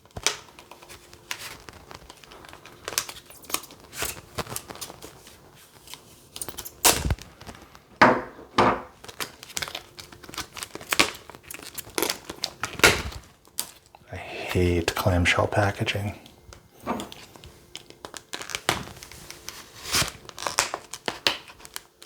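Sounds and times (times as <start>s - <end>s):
plastic packaging crackling: 0.0s - 8.0s, 8.9s - 14.0s, 14.6s - 22.0s
loud sharp plastic cracks: 6.8s - 7.7s, 9.0s - 13.9s, 19.9s - 22.0s.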